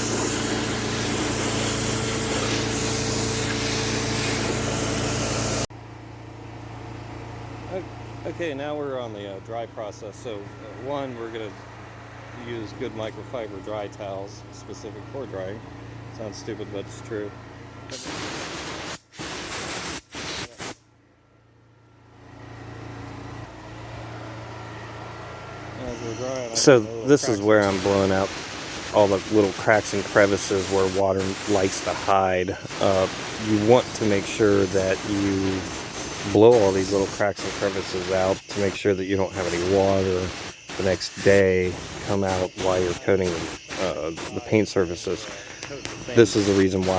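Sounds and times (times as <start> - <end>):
air blower rushing air: 0.0 - 5.7, 25.8 - 46.9
hose water spraying: 0.0 - 5.7, 17.9 - 20.8, 25.9 - 46.9
machine hum: 0.0 - 5.7, 21.3 - 46.9.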